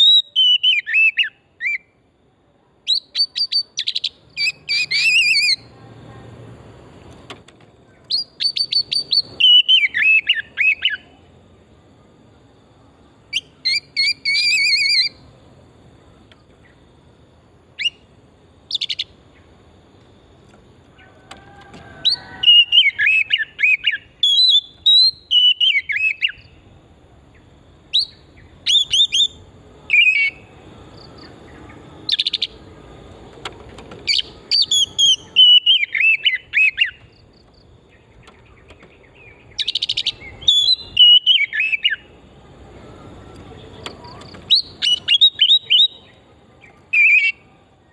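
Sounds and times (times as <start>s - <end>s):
bird singing whistles and trills: 0.0s - 2.0s, 2.8s - 5.7s, 8.0s - 11.2s, 13.3s - 15.2s, 17.8s - 18.1s, 22.0s - 26.6s, 27.3s - 32.6s, 34.1s - 37.2s, 37.9s - 42.2s, 43.3s - 47.9s.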